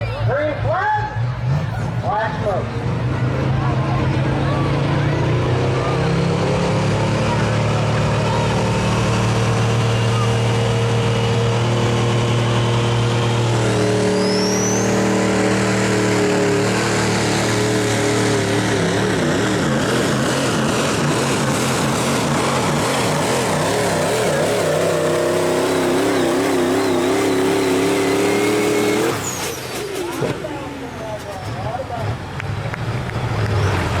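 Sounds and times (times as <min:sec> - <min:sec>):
diesel truck engine under load: 0:00.0 - 0:34.0
high turbo whistle: 0:13.9 - 0:16.0.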